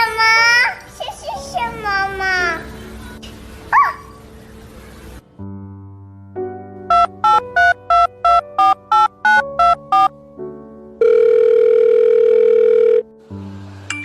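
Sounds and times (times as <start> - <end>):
electronic beeping tune: 6.9 - 10.1.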